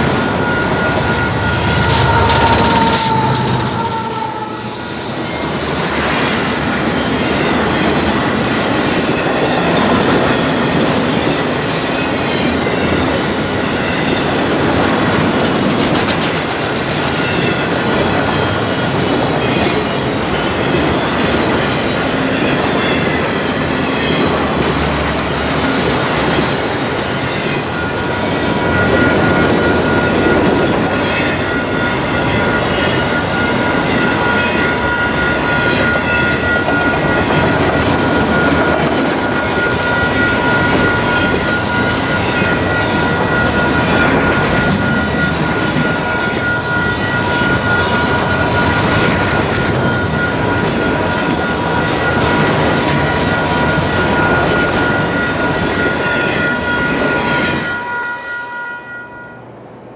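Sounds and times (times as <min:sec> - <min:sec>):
wheel squeal: 0:00.0 - 0:07.5
train wheels clicking over rail joints: 0:00.0 - 0:55.8.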